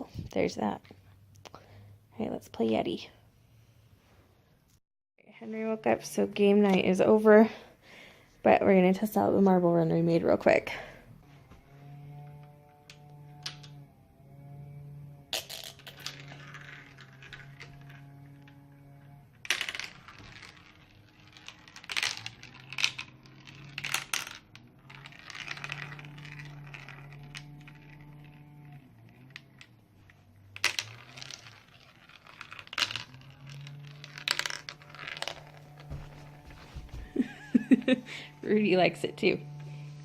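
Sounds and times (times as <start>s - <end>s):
marbles clattering through marble run: 12.3s - 13.8s, 15.3s - 36.7s
held low musical notes: 35.7s - 40.0s.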